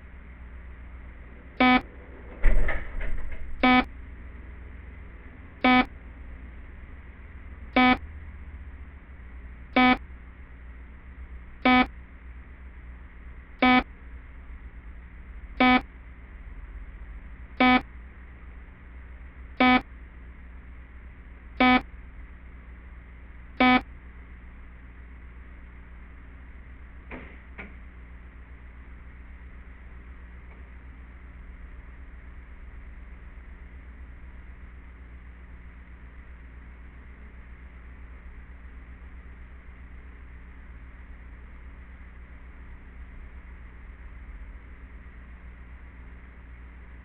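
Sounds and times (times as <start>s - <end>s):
steady low hum: 0.0s - 47.0s
short buzzy alarm beeps: 1.6s - 1.9s, 3.6s - 3.9s, 5.6s - 5.9s, 7.7s - 8.0s, 9.7s - 10.0s, 11.6s - 11.9s, 13.6s - 13.9s, 15.6s - 15.9s, 17.6s - 17.9s, 19.6s - 19.9s, 21.6s - 21.9s, 23.6s - 23.9s.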